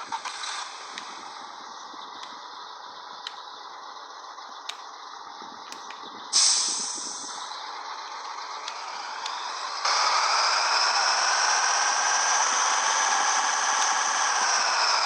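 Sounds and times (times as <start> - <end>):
light clicks: 3.2 - 3.5, 4.6 - 4.9, 5.7 - 6.1
air brake venting burst: 5.7 - 7.5
steady hiss: 5.8 - 7.5.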